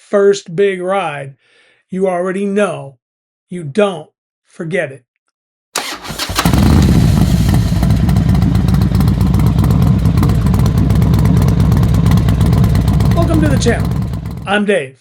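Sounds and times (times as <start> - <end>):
motorcycle starter cranking: 5.8 - 10.9, 12.0 - 14.4
motorcycle engine idling: 5.8 - 14.5.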